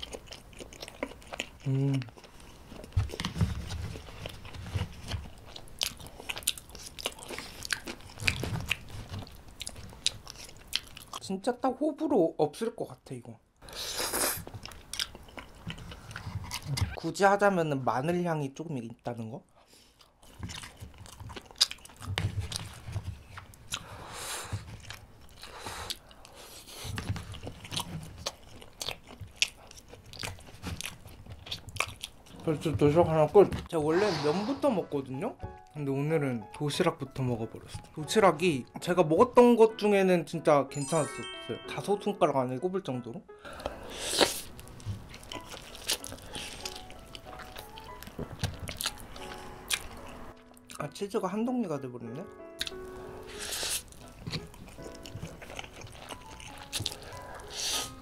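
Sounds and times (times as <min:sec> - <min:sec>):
person chewing food: 0:00.0 - 0:11.2, 0:13.6 - 0:17.0, 0:19.5 - 0:32.7, 0:43.4 - 0:50.8, 0:52.6 - 0:58.0
wet mouth clicks and smacks: 0:52.6 - 0:52.8.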